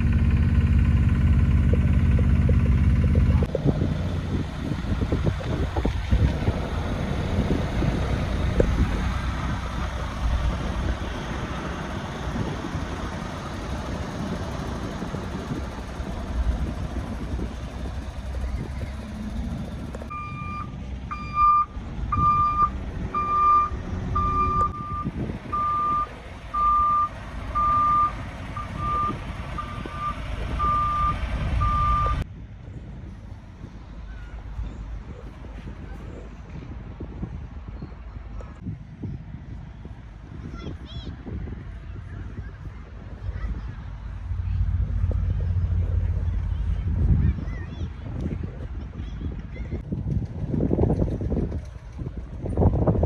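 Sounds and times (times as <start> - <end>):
truck reversing alarm beeping: 0.0 - 32.2
truck engine running: 0.0 - 38.4, 41.3 - 53.0.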